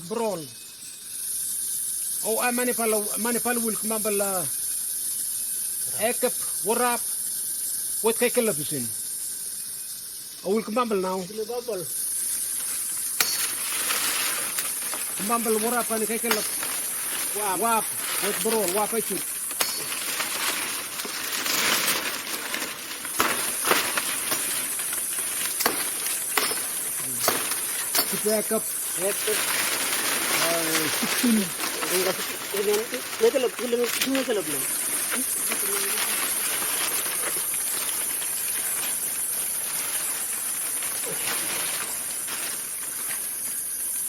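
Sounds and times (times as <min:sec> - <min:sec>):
forest insects hissing: 0:00.0 - 0:44.0
leaves and branches rustling: 0:00.0 - 0:44.0
branches snapping: 0:12.3 - 0:43.5.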